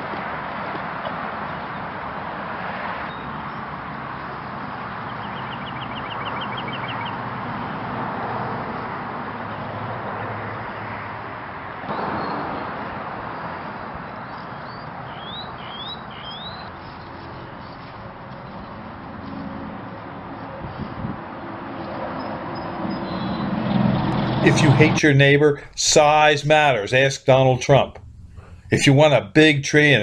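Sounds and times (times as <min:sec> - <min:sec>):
songbirds calling: 0:04.2 - 0:07.5, 0:13.3 - 0:19.0, 0:21.8 - 0:23.6
steady rushing noise: 0:24.1 - 0:29.3.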